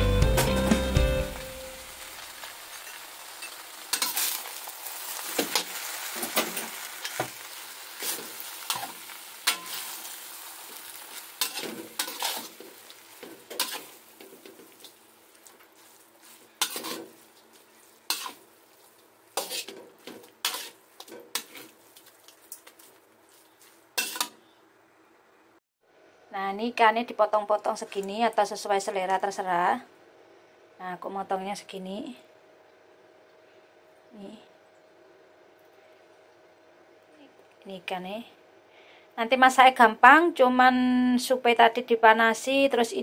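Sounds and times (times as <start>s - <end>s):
food sizzling in a wok: 0.1s - 24.4s
spatula scraping and clanking on wok: 2.7s - 24.4s.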